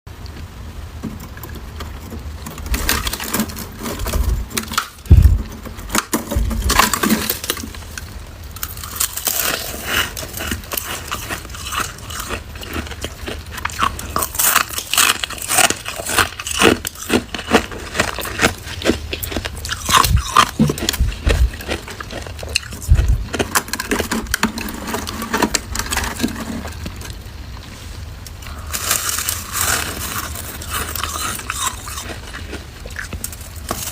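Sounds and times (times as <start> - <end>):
frost crunching being chewed: 1.2 - 33.9
low thumps: 5.1 - 6.8.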